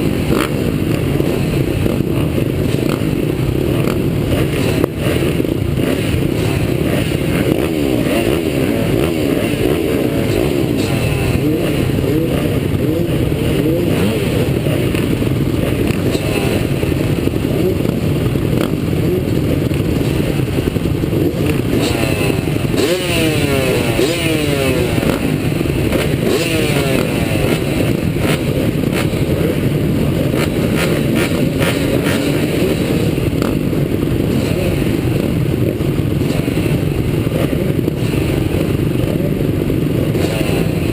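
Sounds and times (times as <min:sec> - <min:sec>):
motocross engines revving: 0:00.0 - 0:40.9.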